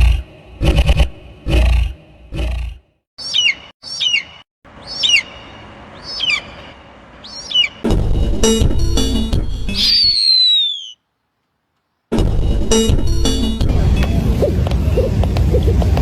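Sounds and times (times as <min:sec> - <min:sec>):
bird screeching calls: 0:03.2 - 0:07.8, 0:09.8 - 0:11.0.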